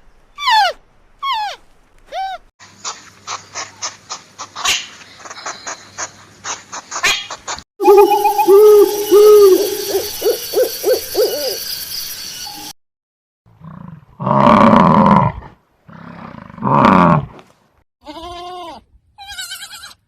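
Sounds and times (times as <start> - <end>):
animal hoots: 7.8 - 11.6
loud rough animal roars: 13.6 - 17.3.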